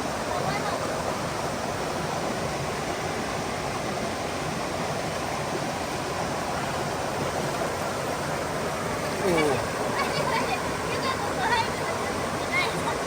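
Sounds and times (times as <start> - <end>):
stream water rushing over rocks: 0.0 - 13.0.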